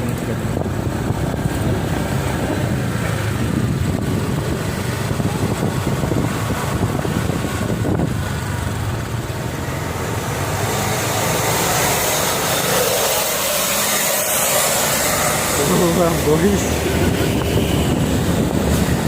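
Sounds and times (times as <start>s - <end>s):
engine and road rumble: 0.0s - 19.0s.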